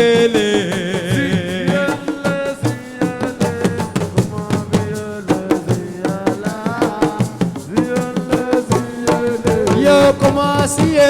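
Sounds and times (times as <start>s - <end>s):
hand drums beating: 0.0s - 11.0s.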